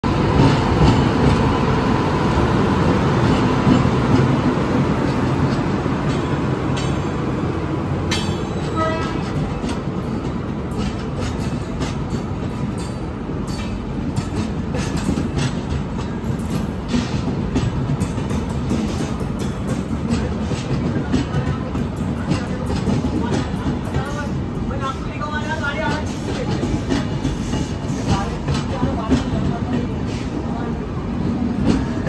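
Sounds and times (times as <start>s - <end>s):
train rumbling past: 0.0s - 32.0s
wheels clacking over rail joints: 2.9s - 30.6s.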